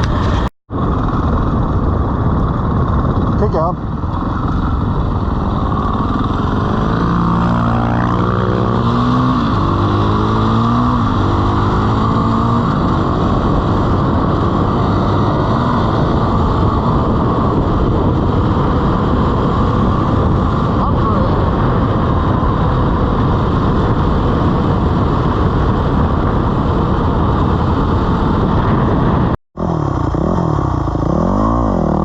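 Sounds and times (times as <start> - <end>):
steady rushing noise: 0.0 - 32.0
dirt bike engine revving: 4.2 - 17.6, 29.6 - 32.0.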